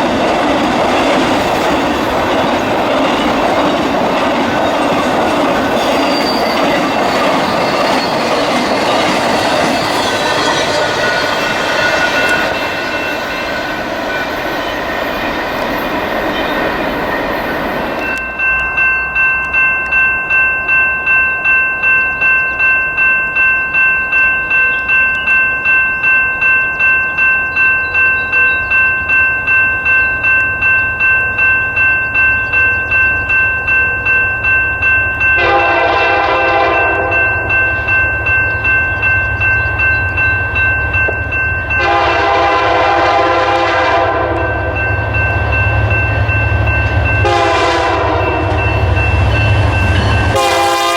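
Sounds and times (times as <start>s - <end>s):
diesel locomotive rumble: 0.0s - 20.0s, 29.8s - 50.9s
crossing bell ringing: 0.0s - 50.9s
train air horn blasts: 35.4s - 37.5s, 41.8s - 44.7s, 47.2s - 48.9s, 50.3s - 50.9s.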